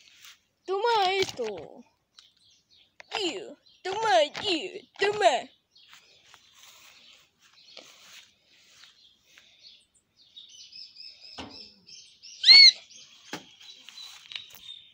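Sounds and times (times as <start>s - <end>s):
birds chirping: 0.0s - 14.9s
steady high bird trill: 0.0s - 14.9s
loud arching bird call: 12.3s - 13.1s.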